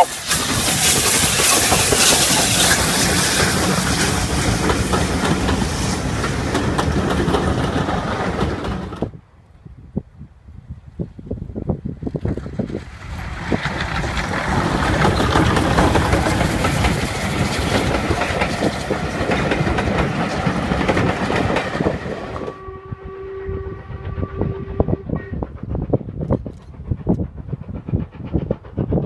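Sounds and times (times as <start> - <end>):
steam hiss: 0.0 - 6.6
train clattering over rail joints: 0.0 - 9.2, 12.0 - 22.5, 25.3 - 29.0.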